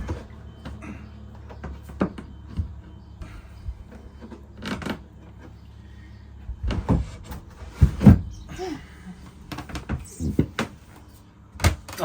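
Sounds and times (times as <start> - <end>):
hollow knocks and thumps: 6.5 - 8.5.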